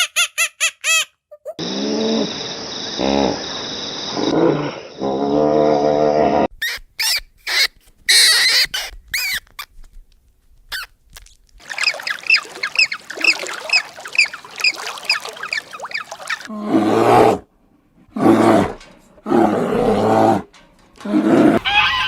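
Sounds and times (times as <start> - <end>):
squeaky animal calls: 6.6 - 9.7, 21.5 - 22.0.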